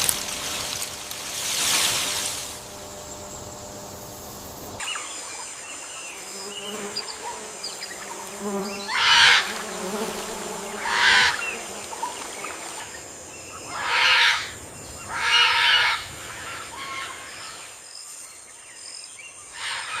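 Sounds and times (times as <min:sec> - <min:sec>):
faint jungle ambience: 0:00.0 - 0:20.0
harsh bird calls: 0:13.3 - 0:17.8, 0:19.3 - 0:20.0.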